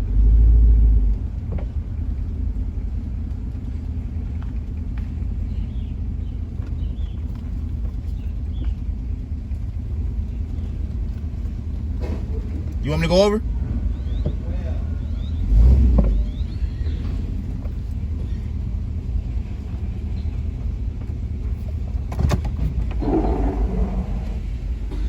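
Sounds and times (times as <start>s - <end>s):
engine low rumble: 0.0s - 25.0s
loud deep rush: 22.9s - 25.0s.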